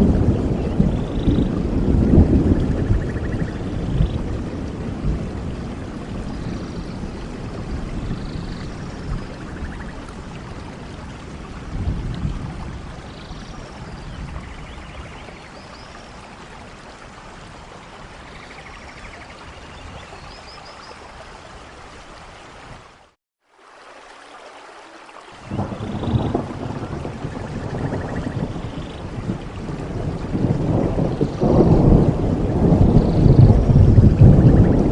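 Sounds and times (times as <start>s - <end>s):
thunder rumbling: 0.0s - 16.7s, 25.4s - 34.9s
steady rain: 0.0s - 34.9s.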